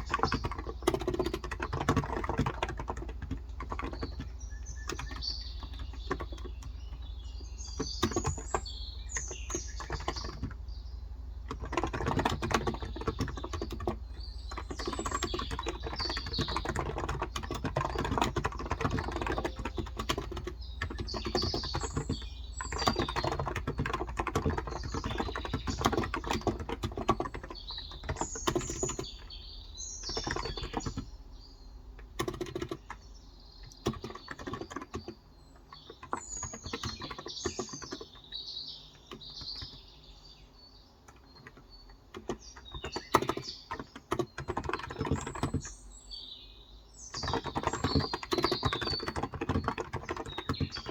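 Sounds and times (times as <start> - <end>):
fast keyboard typing: 0.0 - 40.0, 41.0 - 45.8, 47.0 - 50.9
birds chirping: 0.0 - 50.9
steady low hum: 2.6 - 32.2.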